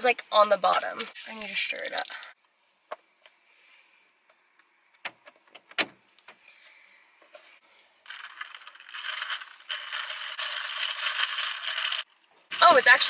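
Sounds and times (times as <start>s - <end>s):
ice rattling in a cup: 1.0s - 2.3s, 8.1s - 13.0s.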